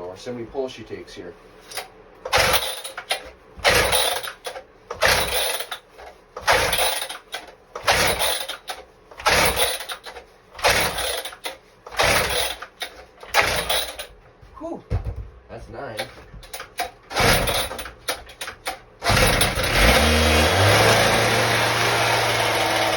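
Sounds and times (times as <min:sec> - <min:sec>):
recoil starter rope pulls: 0:01.6 - 0:14.1, 0:16.0 - 0:22.9.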